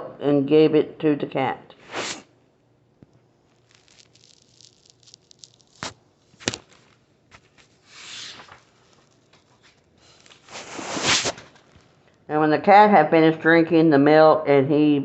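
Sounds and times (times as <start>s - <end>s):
page swishing: 1.8s - 2.2s, 3.7s - 11.9s
paper pages crackling: 3.5s - 12.1s.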